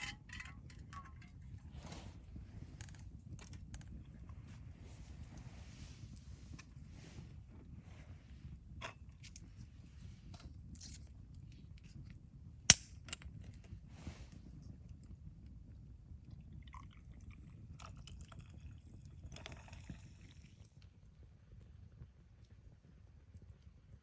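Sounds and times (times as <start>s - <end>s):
low rumble of flame: 0.0s - 24.0s
loud sharp pop of fire: 12.7s - 13.1s.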